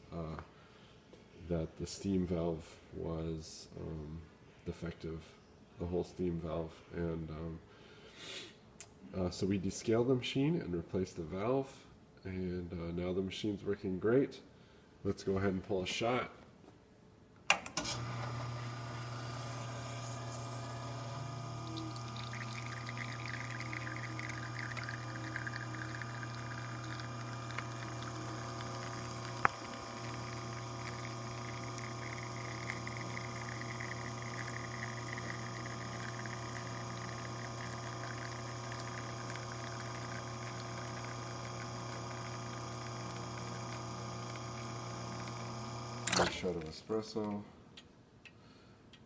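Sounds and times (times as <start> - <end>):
espresso pouring into cup: 17.8 - 46.7
low pump hum: 18.0 - 46.2
sharp machine click: 46.0 - 46.4.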